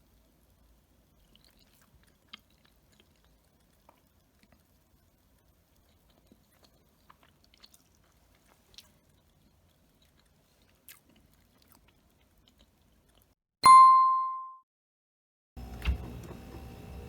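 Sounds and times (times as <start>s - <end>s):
quiet chewing: 0.0s - 13.4s.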